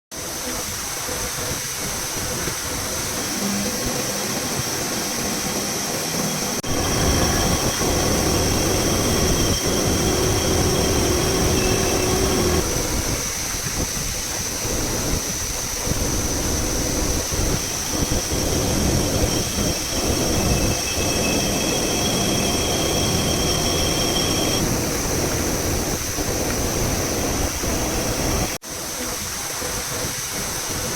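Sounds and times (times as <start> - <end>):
high squeal: 3.3 - 13.4, 17.0 - 24.6
milling machine cutting steel: 6.6 - 13.0, 17.6 - 24.6.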